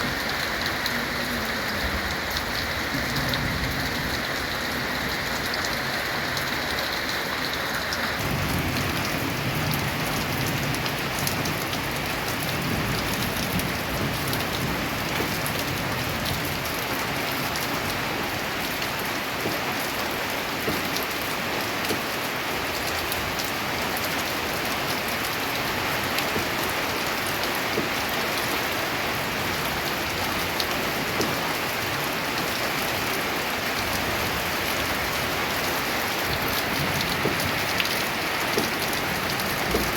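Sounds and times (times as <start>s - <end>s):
rain drumming on a tin roof: 0.0s - 39.9s.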